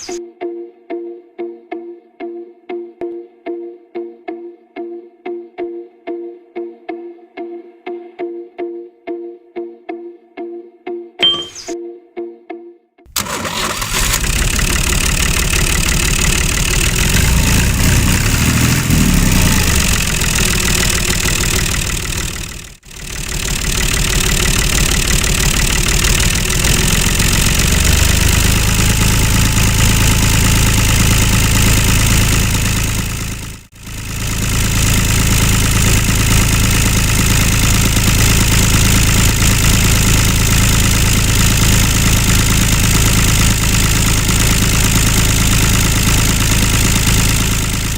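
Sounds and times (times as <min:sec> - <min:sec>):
tractor engine running: 0:13.1 - 0:47.9.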